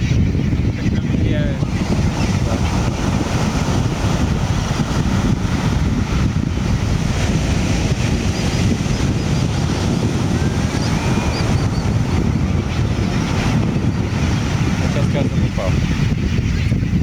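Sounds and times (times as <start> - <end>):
wind buffeting microphone: 0.0 - 17.0
faint high bird chirps: 8.3 - 17.0
thin whistle: 10.3 - 13.2.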